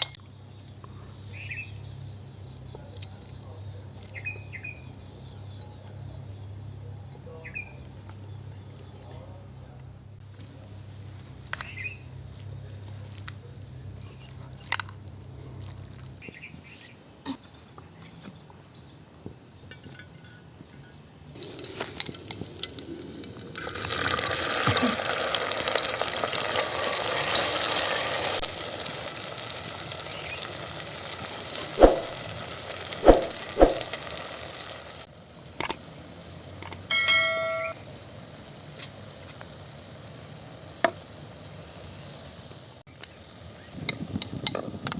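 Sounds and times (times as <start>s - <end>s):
food sizzling in hot oil: 21.4s - 43.7s.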